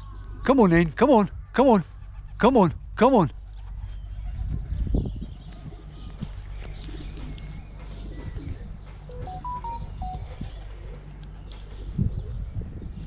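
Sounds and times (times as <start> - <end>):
bird chirps: 3.9 - 11.8.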